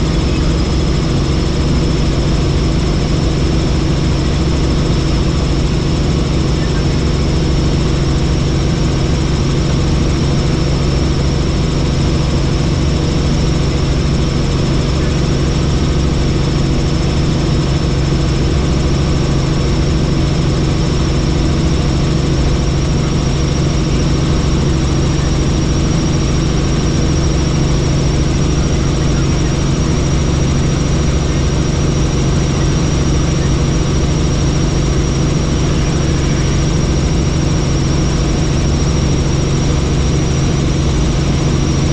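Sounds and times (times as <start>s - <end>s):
helicopter engine and rotor: 0.0s - 41.9s.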